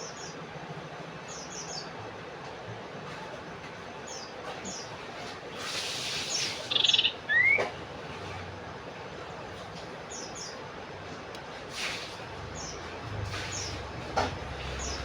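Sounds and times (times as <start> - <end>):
bird chirping: 6.3 - 7.7.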